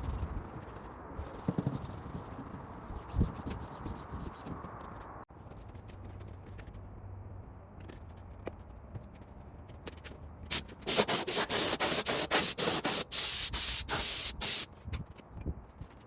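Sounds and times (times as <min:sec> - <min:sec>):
pressurised spray hissing: 0:10.5 - 0:14.7.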